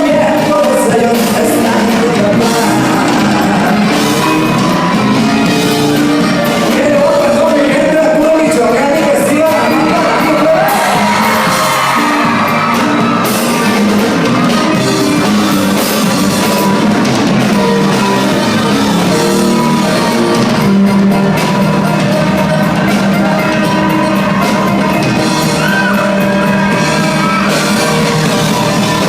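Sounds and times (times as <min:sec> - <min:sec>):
lead singer singing: 0:00.0 - 0:05.2, 0:06.2 - 0:13.6
live band music: 0:00.0 - 0:29.0.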